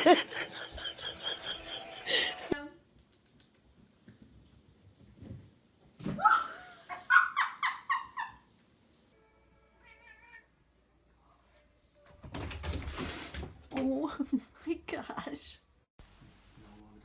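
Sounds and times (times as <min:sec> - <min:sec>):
cat crying out loudly: 0:09.8 - 0:10.5
faint wavering cat meow: 0:09.8 - 0:10.5.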